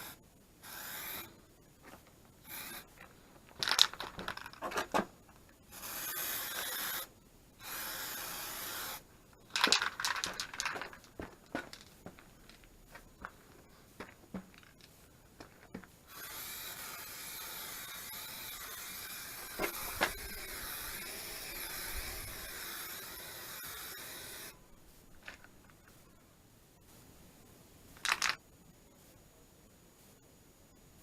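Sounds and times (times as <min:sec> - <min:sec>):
spray paint can hissing: 0:00.0 - 0:01.3, 0:02.4 - 0:03.0, 0:05.7 - 0:11.8, 0:16.1 - 0:24.6.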